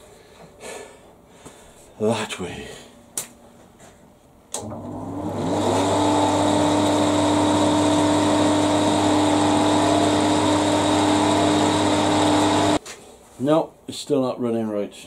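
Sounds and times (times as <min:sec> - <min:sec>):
electric motor hum and whine: 0:04.6 - 0:12.8.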